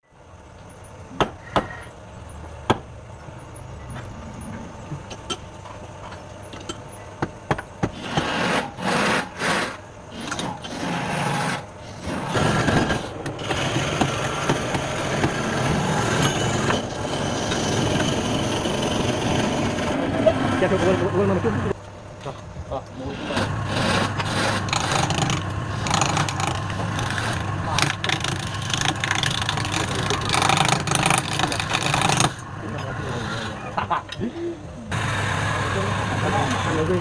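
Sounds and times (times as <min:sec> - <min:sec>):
machine motor running: 0:07.9 - 0:21.8, 0:22.9 - 0:33.8.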